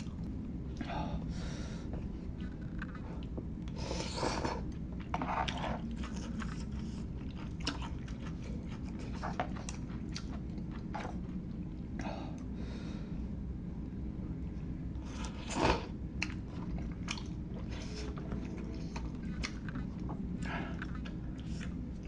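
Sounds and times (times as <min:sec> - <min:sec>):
low background hum: 0:00.0 - 0:22.0
wet chewing and smacks: 0:04.5 - 0:12.5, 0:16.2 - 0:22.0.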